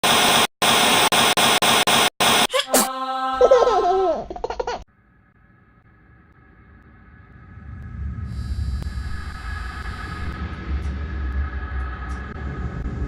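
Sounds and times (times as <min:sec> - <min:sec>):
person laughing: 0:02.5 - 0:04.8.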